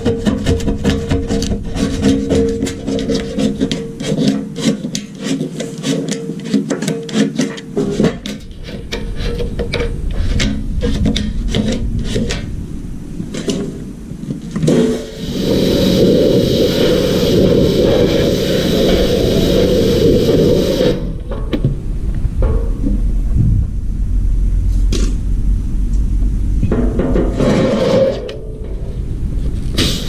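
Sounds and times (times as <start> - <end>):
rasping scraping strokes: 0.0 - 12.6, 14.5 - 21.3, 26.7 - 29.0
steady hiss: 0.0 - 30.0
steady low hum: 0.0 - 30.0.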